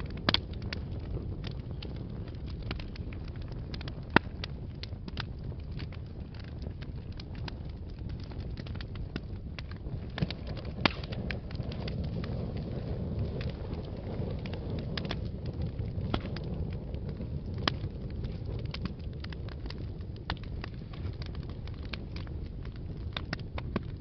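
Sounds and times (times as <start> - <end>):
fireplace fire crackling: 0.0 - 24.0
loud fire pops: 0.0 - 24.0
low fire rumble: 0.0 - 24.0
small pops: 9.6 - 12.0.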